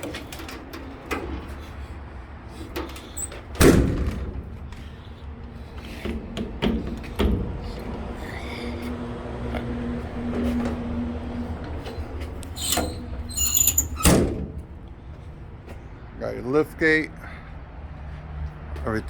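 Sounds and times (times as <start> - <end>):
metal door slamming: 2.8 - 4.6, 12.6 - 14.6.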